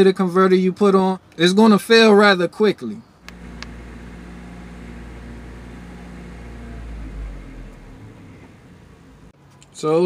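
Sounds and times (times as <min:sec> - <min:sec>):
car engine idling: 0:03.3 - 0:09.3.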